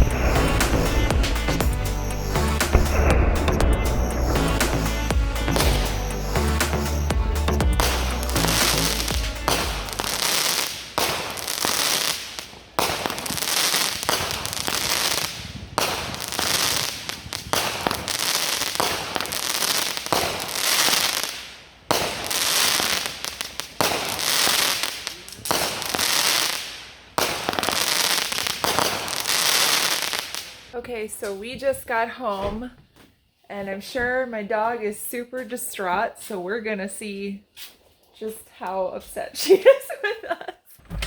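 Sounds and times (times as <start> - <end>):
fireworks crackling and popping: 0.0 - 32.0.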